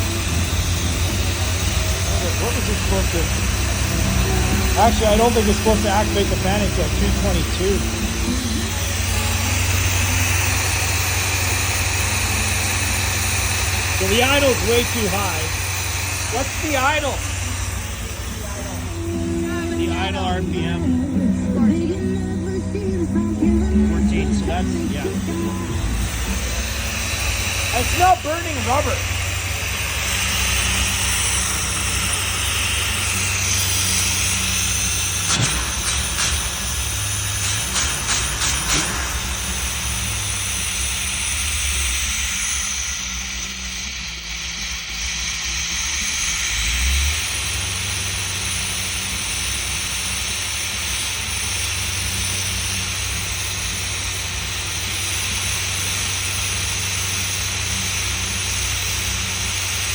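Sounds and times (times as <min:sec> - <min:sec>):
car engine idling: 0:00.0 - 0:59.9
steady hiss: 0:00.0 - 0:59.9.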